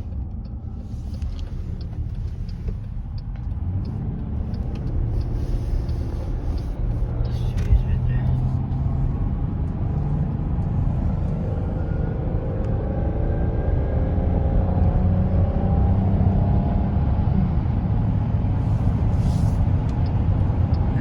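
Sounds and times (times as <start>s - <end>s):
car road noise from inside: 0.0s - 21.0s.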